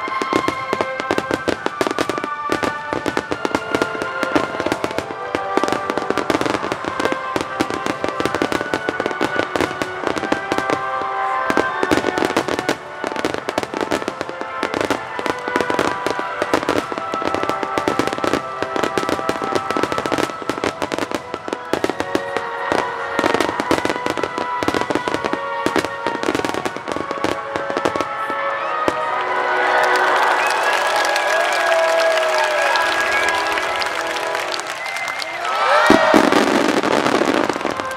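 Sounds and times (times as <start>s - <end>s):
firework bursts and crackling: 0.0s - 37.9s
music playing: 0.0s - 37.9s.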